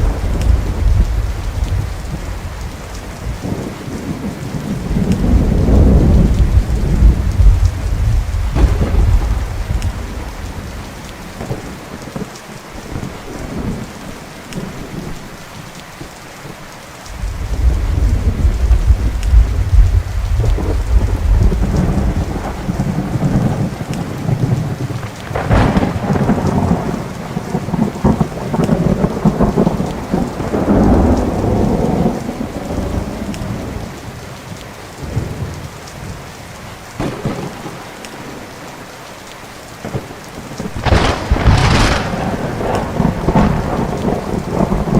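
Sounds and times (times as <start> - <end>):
sharp thunder crack: 0.0 - 2.6, 3.2 - 11.6, 17.1 - 33.3, 37.0 - 37.9, 39.8 - 44.9
rolling thunder: 0.0 - 12.3, 17.1 - 34.1, 37.0 - 38.4, 39.8 - 44.9
steady rain: 0.0 - 44.9.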